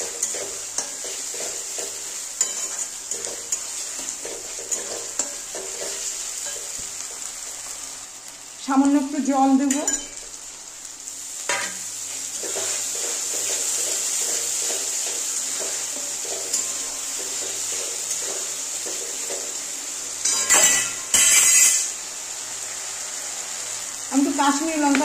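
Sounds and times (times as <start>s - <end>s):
masala sizzling in a pan: 0.0s - 25.0s
metal spatula scraping a pan: 20.2s - 22.0s.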